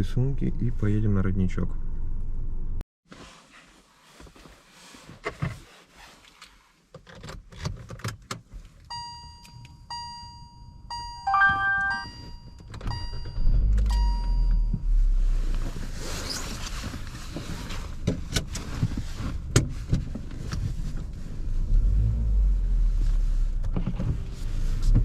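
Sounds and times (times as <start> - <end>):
car warning chime beeping: 8.9 - 14.9
short three-note chime: 11.2 - 12.3.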